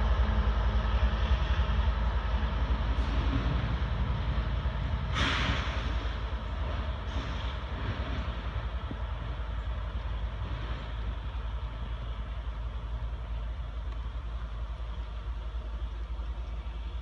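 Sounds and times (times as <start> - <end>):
low rumble of train: 0.0 - 17.0
hiss: 5.1 - 6.4, 7.0 - 8.4.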